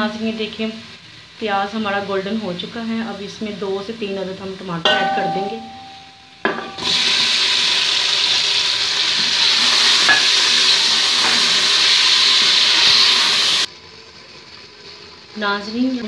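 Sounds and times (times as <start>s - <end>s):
tomato sizzling in hot oil: 0.0s - 16.0s.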